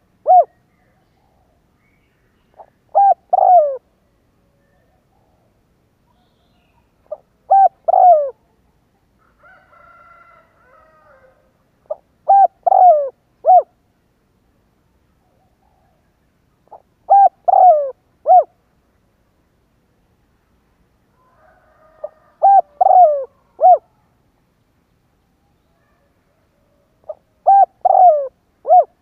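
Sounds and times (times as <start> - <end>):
dove cooing: 0.0 - 0.6, 2.5 - 3.9, 7.1 - 8.5, 10.6 - 13.8, 16.6 - 18.6, 21.4 - 24.1, 25.8 - 29.0.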